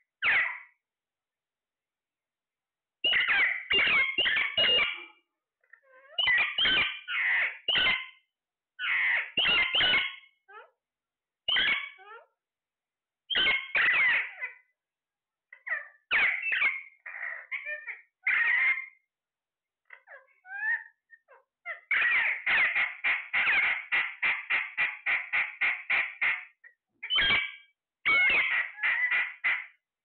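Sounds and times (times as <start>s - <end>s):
parrot squawking: 0.2s - 0.7s, 3.0s - 5.2s, 5.9s - 8.2s, 8.8s - 10.7s, 11.5s - 12.3s, 13.3s - 14.6s, 15.5s - 19.0s, 19.9s - 29.8s.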